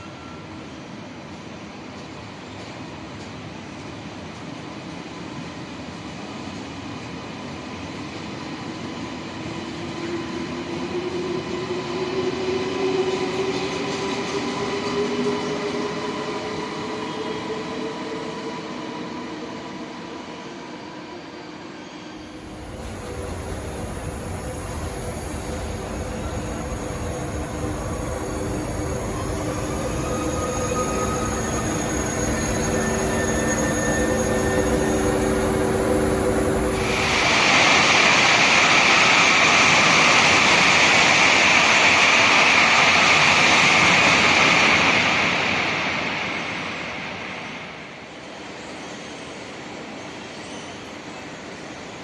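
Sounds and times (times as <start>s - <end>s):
high-speed train passing: 0.0s - 52.0s
rising whine: 22.2s - 39.0s
deep train rumble: 22.2s - 46.2s.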